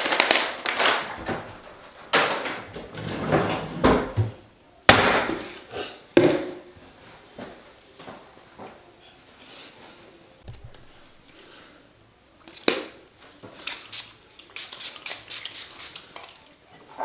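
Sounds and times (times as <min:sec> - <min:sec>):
handling noise: 0:00.0 - 0:08.9, 0:10.4 - 0:11.4.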